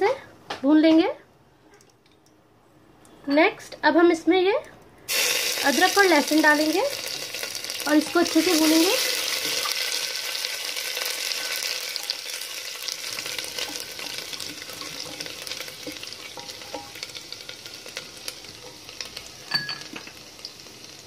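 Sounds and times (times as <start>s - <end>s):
ginger and garlic sizzling in oil: 5.1s - 21.0s
wooden spatula scraping and tapping pot: 13.2s - 20.2s.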